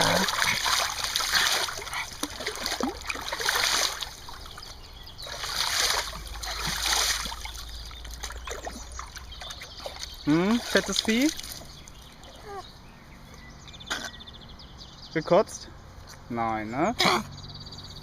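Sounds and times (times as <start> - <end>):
river water splashing: 0.0 - 12.4
water trickling: 0.0 - 12.4.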